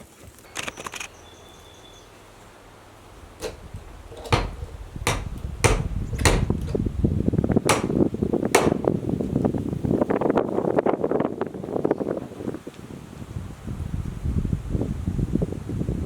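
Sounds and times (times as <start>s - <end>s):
sharp knocks: 3.4s - 6.9s, 7.7s - 9.0s.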